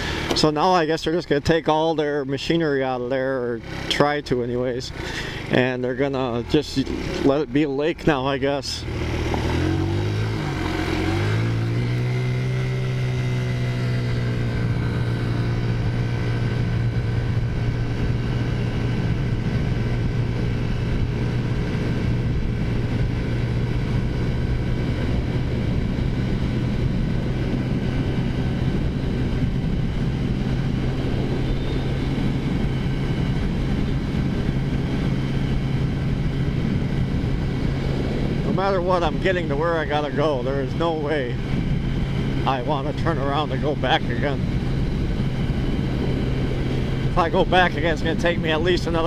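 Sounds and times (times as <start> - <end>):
scooter engine accelerating: 0.0 - 0.6, 3.4 - 49.0.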